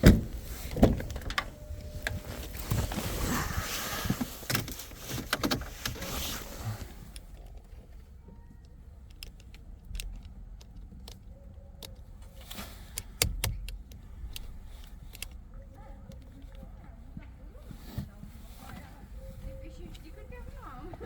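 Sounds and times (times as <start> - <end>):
small clicks and rattles: 7.1 - 16.9.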